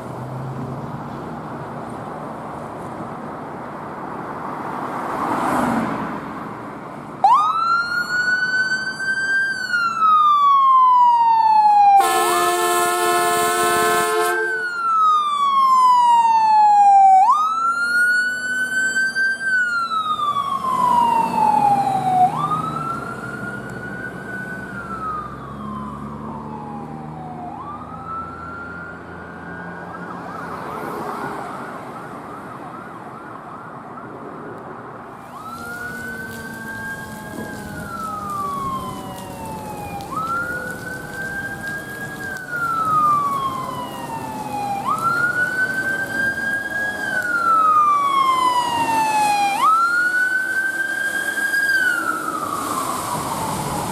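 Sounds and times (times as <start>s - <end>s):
vehicle engine noise: 0.0s - 53.9s
emergency siren wailing: 7.2s - 34.4s, 35.0s - 53.9s.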